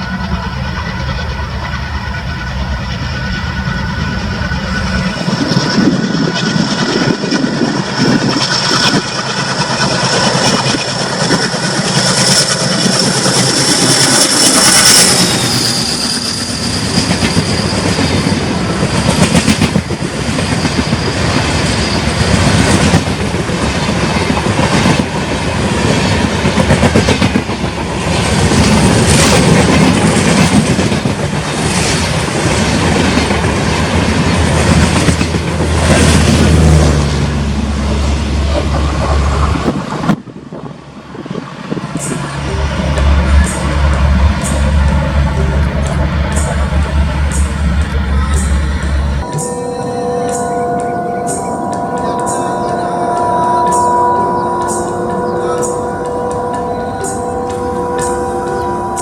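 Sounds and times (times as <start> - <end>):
high-pitched whine: 0.0 - 27.3, 41.7 - 59.0
wheels clattering over rail joints: 4.8 - 37.4.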